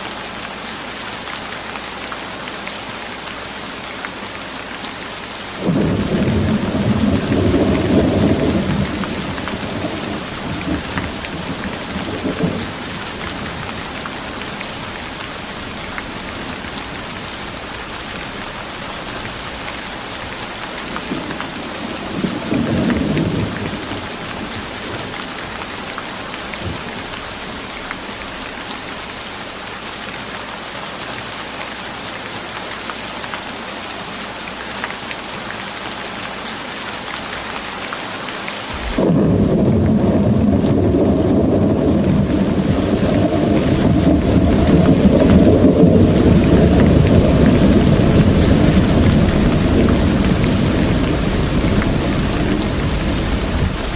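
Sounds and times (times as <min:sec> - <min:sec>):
heavy rain falling: 0:00.0 - 0:53.9
rolling thunder: 0:05.6 - 0:29.1, 0:38.7 - 0:53.9.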